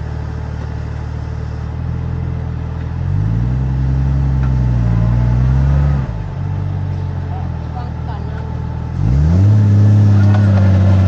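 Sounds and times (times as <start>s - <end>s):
engine revving: 3.0s - 6.6s, 7.3s - 11.0s.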